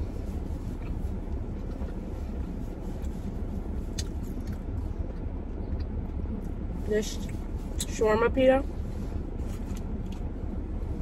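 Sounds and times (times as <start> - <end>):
low background rumble: 0.0 - 11.0
person chewing food: 0.1 - 6.6.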